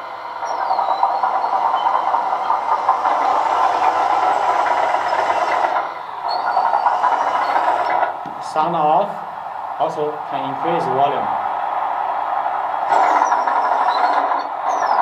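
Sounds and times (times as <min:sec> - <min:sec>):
simulated engine sound: 0:00.0 - 0:08.8
toy excavator tracks clattering: 0:00.4 - 0:08.2, 0:12.9 - 0:15.0.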